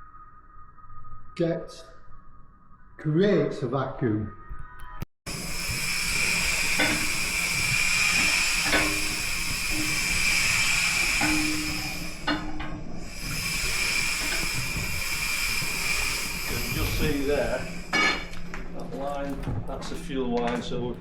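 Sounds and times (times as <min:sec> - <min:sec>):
steam hissing: 0:05.3 - 0:19.0.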